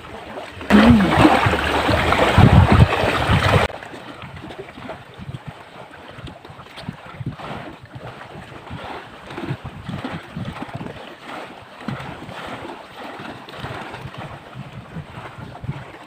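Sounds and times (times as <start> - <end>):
sea surf rushing: 0.0 - 3.7
wind buffeting microphone: 0.0 - 16.0.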